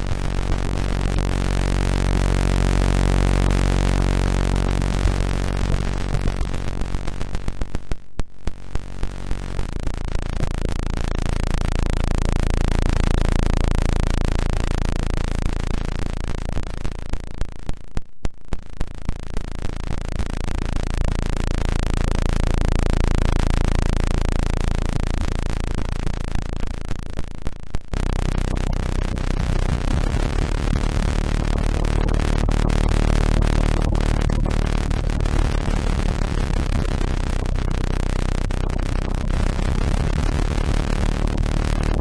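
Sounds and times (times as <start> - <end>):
pulsing synthesized drone: 0.0 - 7.4, 28.0 - 42.0.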